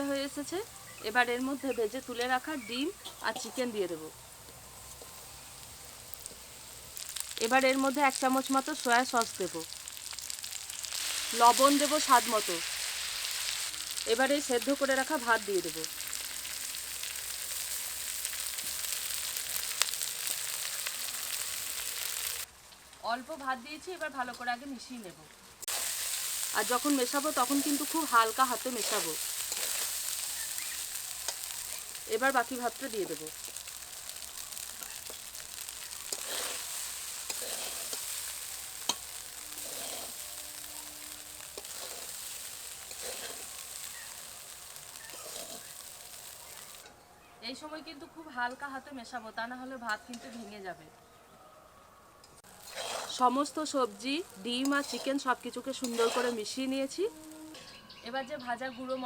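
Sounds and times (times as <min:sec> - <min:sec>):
stir-fry sizzling in hot oil: 0:00.0 - 0:46.9, 0:52.4 - 0:57.7
spatula scraping pan: 0:25.7 - 0:46.8, 0:52.6 - 0:53.5, 0:54.6 - 0:56.9.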